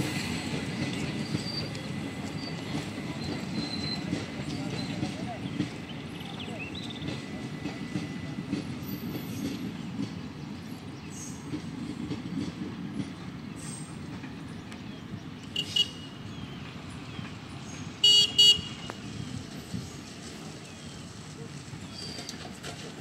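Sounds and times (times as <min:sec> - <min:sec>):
train coaches rumbling on rails: 0:00.0 - 0:23.0
shrill train horn toots: 0:15.5 - 0:16.3, 0:18.0 - 0:19.1.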